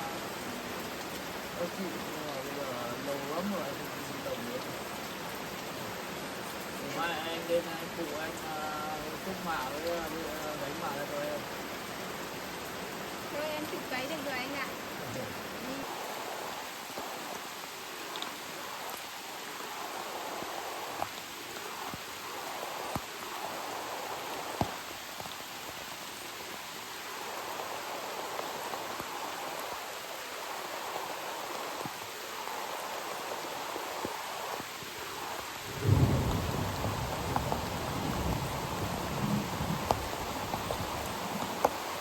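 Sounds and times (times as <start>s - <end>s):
steady rain: 0.0s - 42.0s
rain drop taps: 8.0s - 10.8s, 22.9s - 23.1s, 35.9s - 41.9s.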